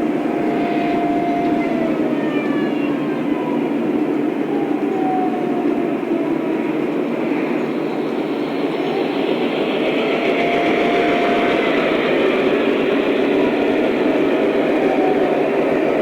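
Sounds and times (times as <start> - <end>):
model train running on track: 0.0 - 2.6, 5.9 - 16.0.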